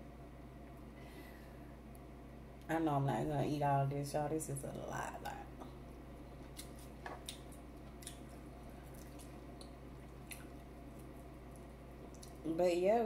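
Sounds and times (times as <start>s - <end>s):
low steady hum: 0.0s - 13.0s
person chewing food: 6.3s - 12.4s.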